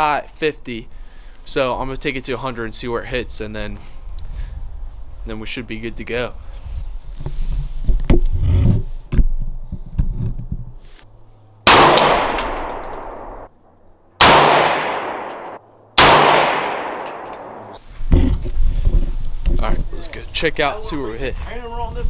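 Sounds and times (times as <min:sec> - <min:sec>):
rifle shots with echo: 0:11.7 - 0:13.5, 0:14.2 - 0:17.8.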